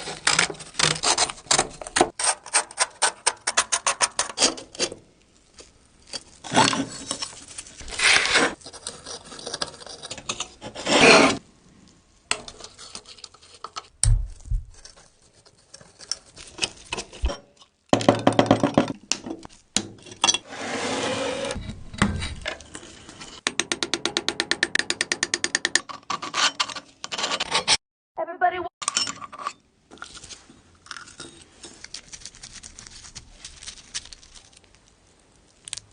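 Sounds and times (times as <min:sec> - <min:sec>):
scraping and rubbing: 0:00.0 - 0:11.4, 0:12.3 - 0:17.8, 0:19.4 - 0:23.4, 0:25.8 - 0:27.8, 0:29.3 - 0:34.7.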